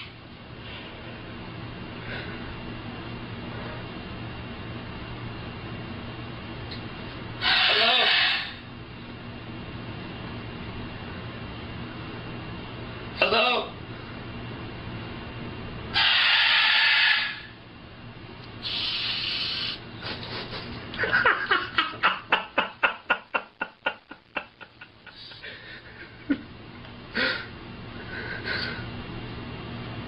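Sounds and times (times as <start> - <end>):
brief parrot calls: 7.4 - 8.6, 16.0 - 17.5
parrot squawking: 7.4 - 8.6, 15.9 - 17.6.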